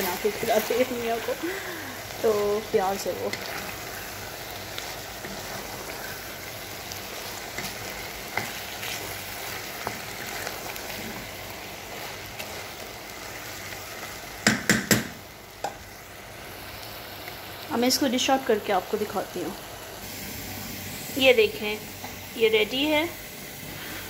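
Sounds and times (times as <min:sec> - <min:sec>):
food sizzling in a pot: 0:00.0 - 0:24.0
wooden spoon stirring and scraping: 0:02.0 - 0:13.9
spoon knocking on pot: 0:14.4 - 0:15.8.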